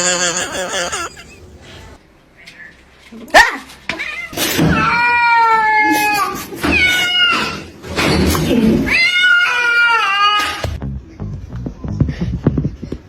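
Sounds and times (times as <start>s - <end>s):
cat meowing: 0.0s - 1.2s.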